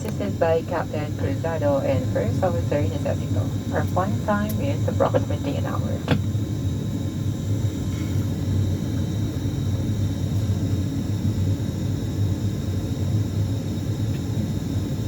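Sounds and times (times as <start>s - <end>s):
faint high whine: 0.0s - 15.0s
turboprop engine rumble: 0.0s - 15.0s.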